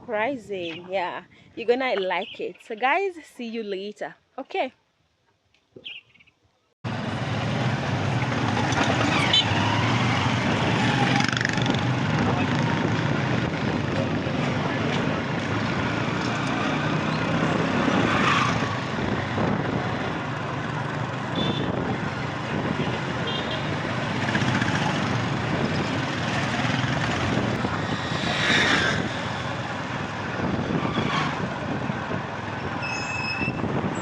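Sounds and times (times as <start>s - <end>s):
rushing wind noise: 7.4s - 34.0s.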